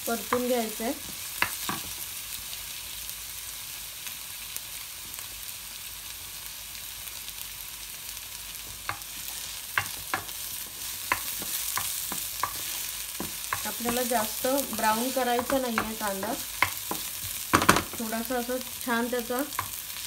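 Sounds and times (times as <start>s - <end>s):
onion and garlic sizzling in oil: 0.0s - 20.0s
wooden spoon knocking on pan: 9.7s - 18.2s.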